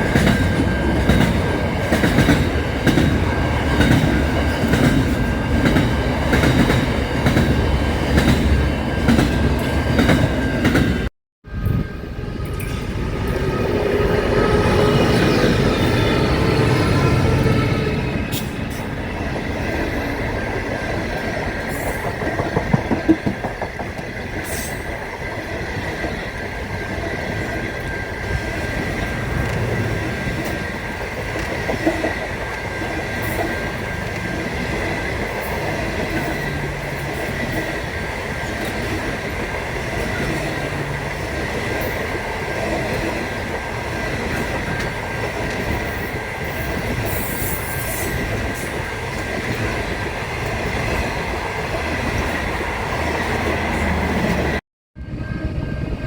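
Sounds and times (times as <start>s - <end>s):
train rumbling along track: 0.0s - 56.0s
high-pitched squeal: 11.5s - 20.8s.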